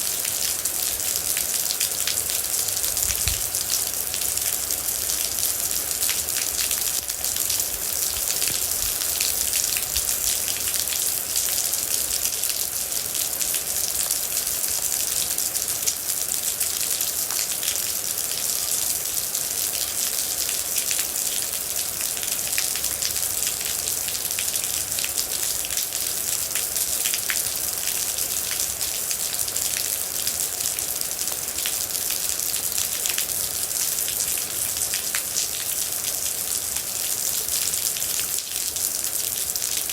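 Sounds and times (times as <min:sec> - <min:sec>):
raindrops pattering close by: 0:00.0 - 0:12.5.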